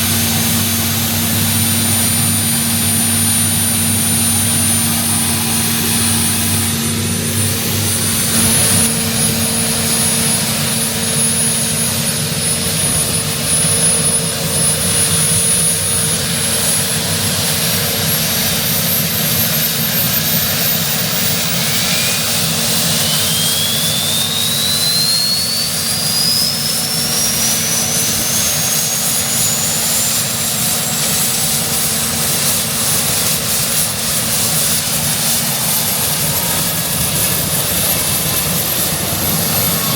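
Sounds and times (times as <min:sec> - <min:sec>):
helicopter turbine whine: 0:00.0 - 0:39.9.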